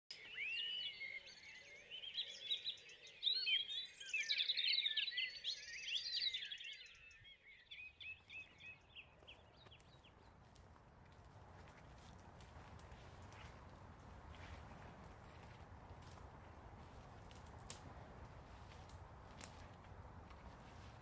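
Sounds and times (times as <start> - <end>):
songbirds singing: 0.1 - 21.0.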